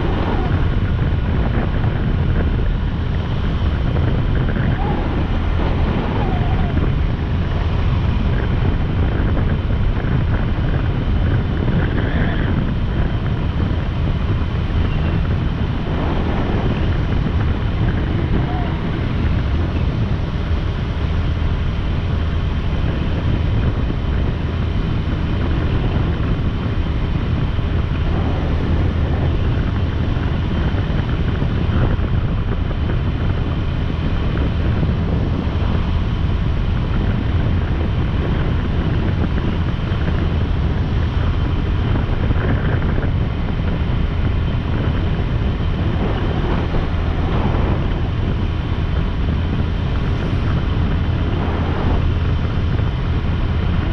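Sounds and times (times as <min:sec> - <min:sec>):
motorcycle engine and road noise: 0:00.0 - 0:53.9
wind rushing over microphone: 0:00.0 - 0:53.9.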